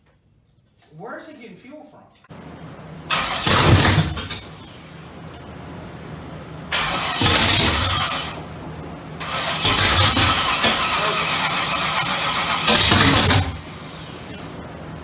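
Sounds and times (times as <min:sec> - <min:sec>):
car engine cranking on starter: 0:03.1 - 0:05.6, 0:06.7 - 0:08.6, 0:09.2 - 0:14.6.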